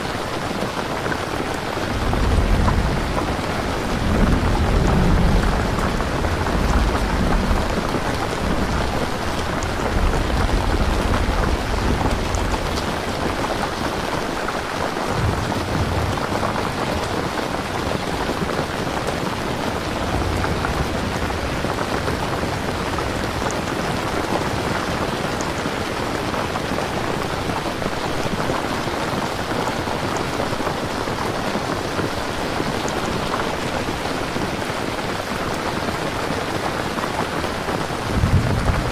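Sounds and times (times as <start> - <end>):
thunder rumbling: 0.0 - 26.4, 37.4 - 38.9
rain falling: 0.0 - 38.9.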